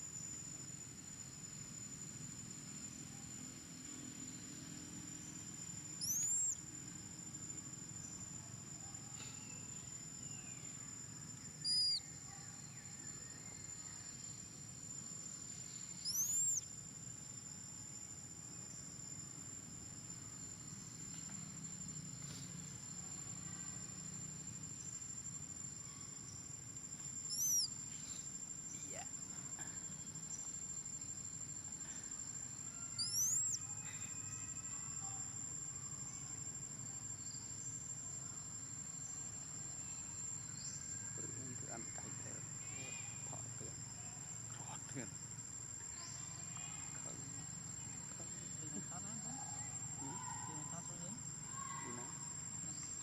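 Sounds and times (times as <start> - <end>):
insects trilling: 0.0 - 53.0
high-pitched rising chirps: 11.7 - 12.0.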